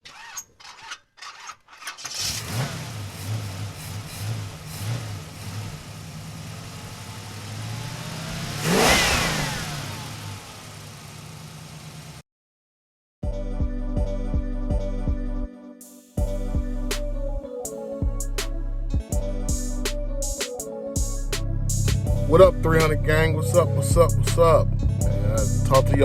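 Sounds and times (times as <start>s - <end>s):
car engine starting and idling: 2.0s - 12.2s
engine revving: 2.0s - 12.2s.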